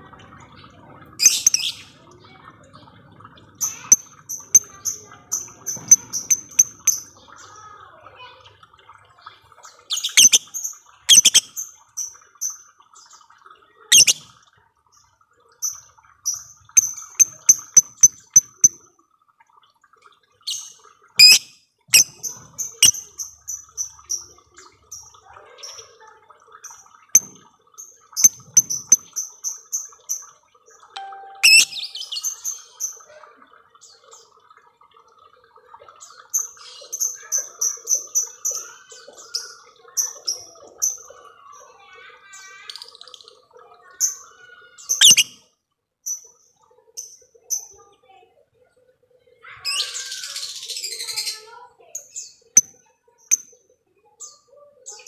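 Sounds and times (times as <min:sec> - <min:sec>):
sharp single ticking calls: 0:11.1 - 0:11.4, 0:21.2 - 0:22.1, 0:31.0 - 0:32.4, 0:45.0 - 0:45.3
lovebirds chirping trill: 0:31.0 - 0:32.4.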